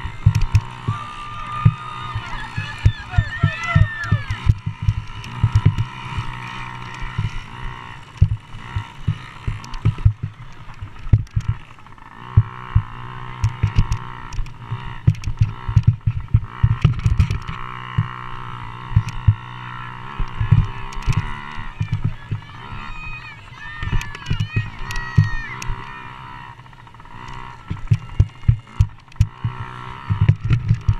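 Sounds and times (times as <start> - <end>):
dirt bike engines buzzing: 0.0 - 30.9.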